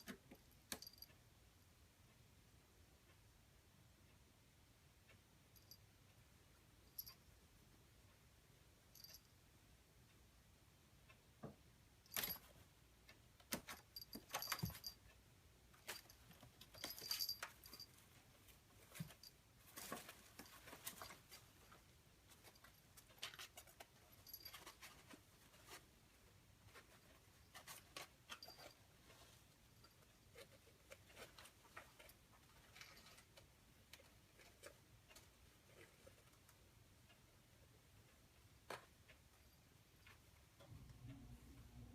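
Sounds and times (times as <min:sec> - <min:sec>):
light jingles: 0:12.0 - 0:12.6, 0:13.6 - 0:15.1, 0:15.8 - 0:25.8, 0:26.6 - 0:33.4.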